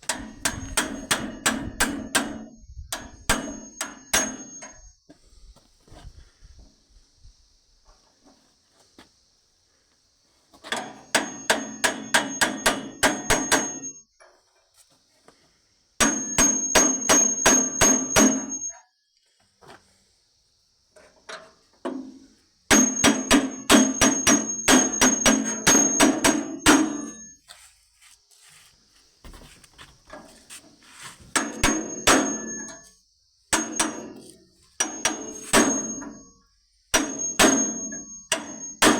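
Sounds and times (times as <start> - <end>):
hammer striking steel: 0.1 - 4.8, 11.0 - 14.0, 16.0 - 18.7, 22.7 - 27.3, 31.4 - 32.9, 33.5 - 36.3, 37.0 - 38.9.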